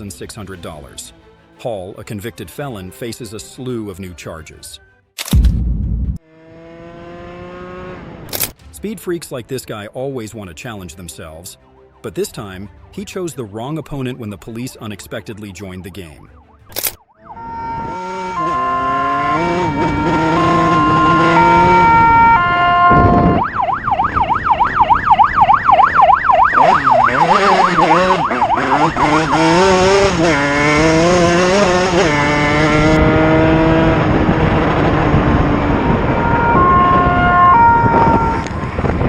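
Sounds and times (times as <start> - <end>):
police siren: 15.8 - 33.1, 34.0 - 38.8.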